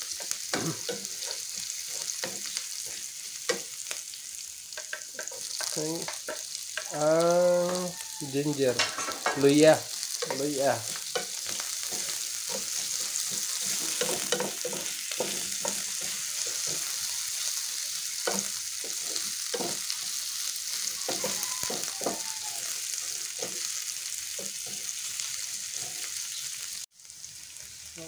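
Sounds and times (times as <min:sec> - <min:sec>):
onion sizzling in hot oil: 0:00.0 - 0:28.0
wooden spatula scraping a pan: 0:00.1 - 0:03.7, 0:04.8 - 0:06.9, 0:08.7 - 0:23.7.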